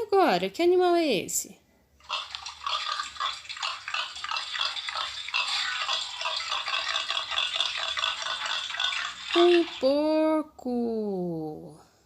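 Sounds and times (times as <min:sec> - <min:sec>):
pig grunting: 0:02.1 - 0:09.8.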